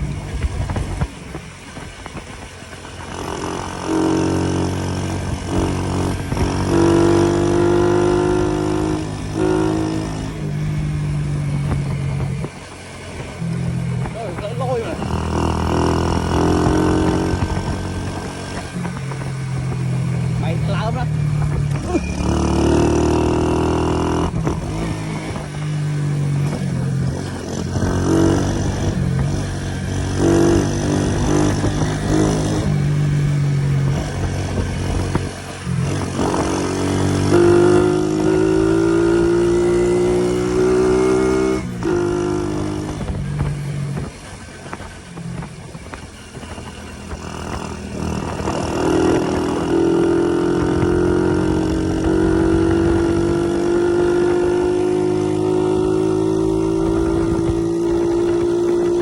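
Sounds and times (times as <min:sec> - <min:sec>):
motorbike engine revving: 0:00.0 - 0:59.0.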